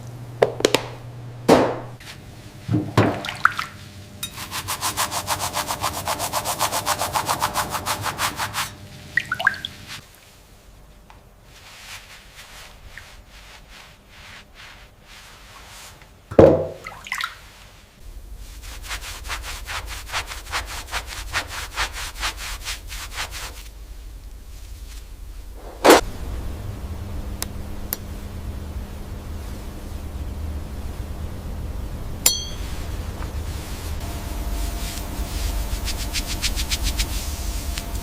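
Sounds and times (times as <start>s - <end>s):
silverware being scrubbed by hand: 4.2s - 10.0s, 32.3s - 32.9s.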